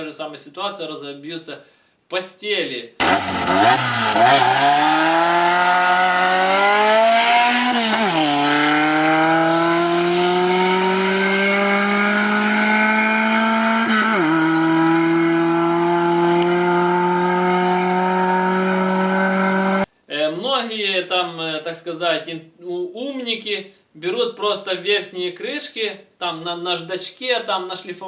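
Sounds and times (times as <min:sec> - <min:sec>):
car engine accelerating: 0:03.0 - 0:19.9.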